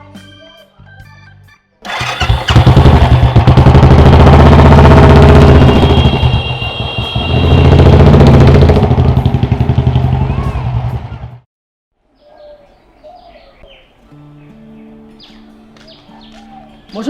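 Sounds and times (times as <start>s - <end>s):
motorcycle engine running: 1.8s - 11.4s
faint bird chirps: 12.1s - 17.0s.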